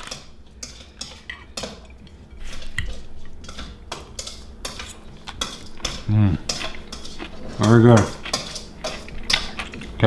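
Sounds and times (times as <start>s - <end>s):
cutlery clinking on plates: 0.0s - 10.0s
person humming: 6.0s - 6.5s.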